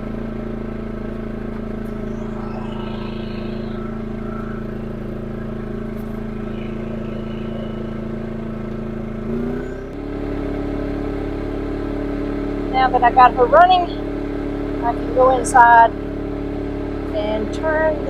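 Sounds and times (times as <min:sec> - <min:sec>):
generator engine running: 0:00.0 - 0:18.0.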